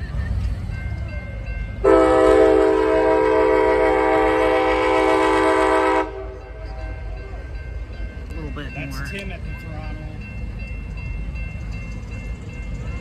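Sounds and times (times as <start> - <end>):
train air horn blast: 1.8 - 6.4.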